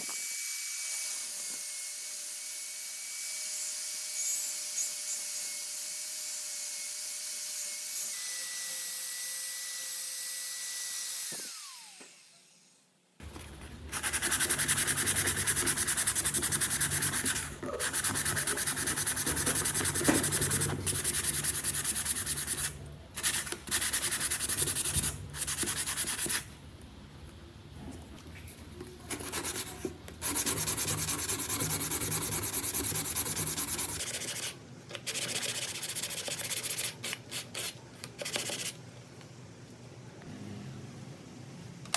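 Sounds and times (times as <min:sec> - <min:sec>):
power tool motor whine: 0:11.2 - 0:12.8.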